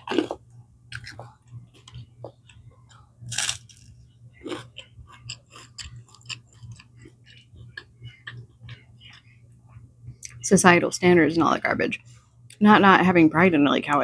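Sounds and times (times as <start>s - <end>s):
chewing and mouth clicks: 0.0s - 10.4s
steady low hum: 0.0s - 14.0s
loud crunch: 3.3s - 3.8s.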